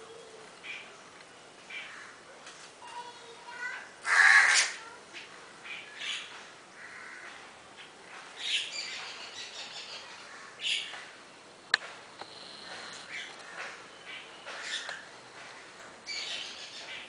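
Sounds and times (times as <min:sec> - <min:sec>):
birds squawking harshly: 0:04.0 - 0:07.4, 0:13.1 - 0:17.0.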